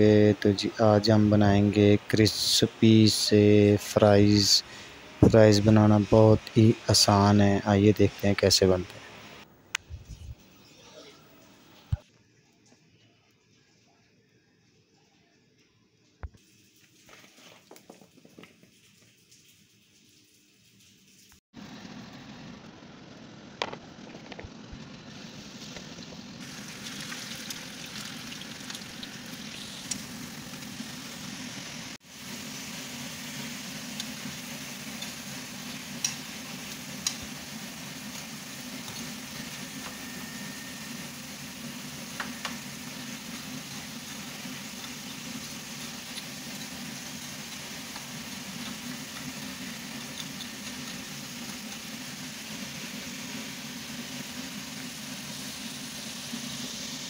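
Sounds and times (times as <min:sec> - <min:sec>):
fries sizzling in oil: 0:16.4 - 0:22.6, 0:23.9 - 0:57.0
metal tongs clicking on pan: 0:36.0 - 0:36.2, 0:37.0 - 0:37.2.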